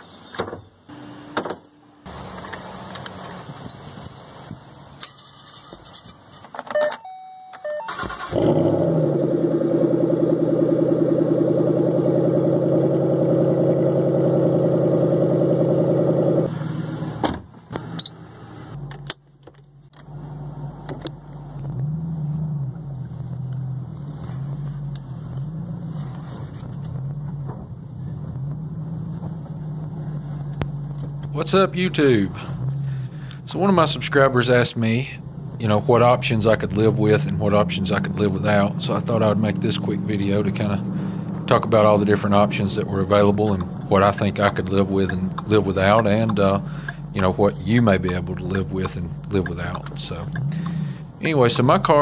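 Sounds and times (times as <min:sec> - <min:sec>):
car engine starting and idling: 0:06.8 - 0:52.0
car engine accelerating from cabin: 0:08.2 - 0:17.2, 0:20.0 - 0:33.2, 0:35.2 - 0:51.2.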